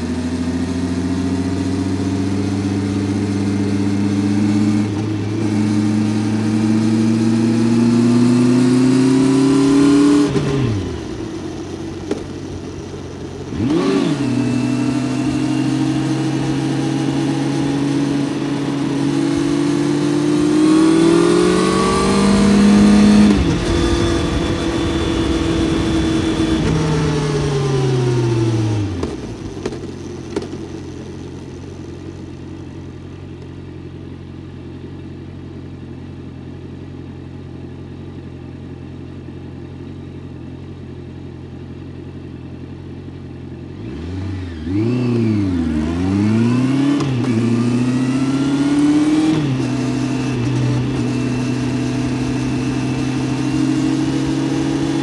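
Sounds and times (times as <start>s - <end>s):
motorcycle engine revving: 0.0s - 33.4s, 34.0s - 55.0s
motorcycle engine idling: 10.7s - 13.6s, 29.0s - 43.8s.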